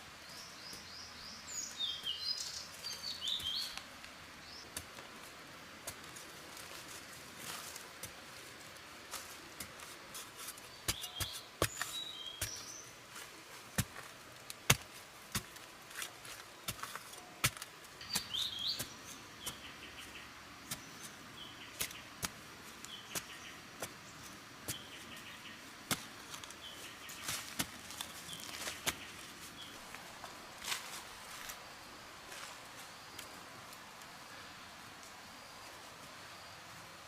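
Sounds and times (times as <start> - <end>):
birds chirping: 0.2 - 4.8, 10.5 - 13.2, 16.0 - 31.8.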